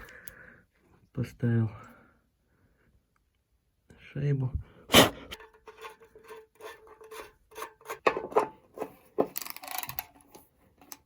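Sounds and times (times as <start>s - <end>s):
metal scraping rasp: 5.2s - 8.9s
small metallic clicks and knocks: 5.4s - 11.0s.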